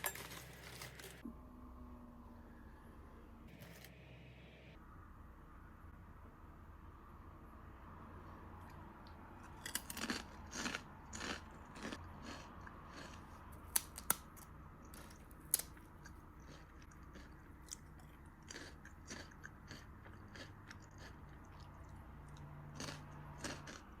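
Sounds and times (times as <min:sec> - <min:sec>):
potato chips crunching while chewed: 0:09.4 - 0:24.0.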